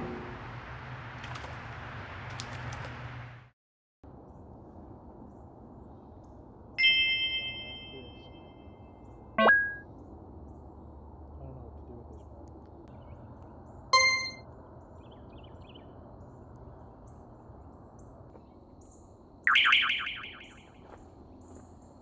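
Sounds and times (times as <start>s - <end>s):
bright ringing tone: 6.8s - 8.6s, 14.0s - 14.4s
faint high chirps: 6.8s - 8.8s, 14.0s - 14.4s.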